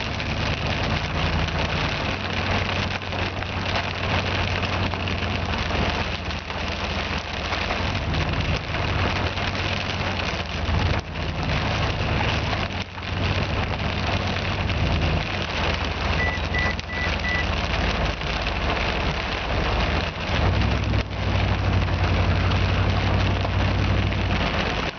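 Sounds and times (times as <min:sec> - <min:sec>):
heavy rain beating on a vehicle: 0:00.0 - 0:24.9
short high beeps: 0:16.2 - 0:17.5.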